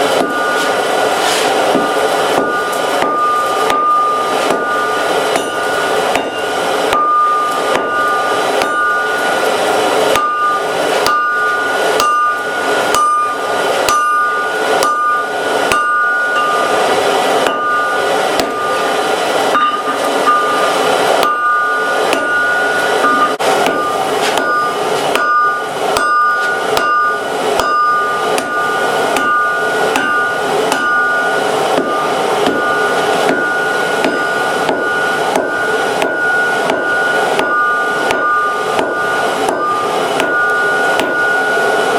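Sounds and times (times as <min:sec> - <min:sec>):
anvil ringing: 0:00.0 - 0:41.9
hammer striking steel on anvil: 0:00.0 - 0:41.9.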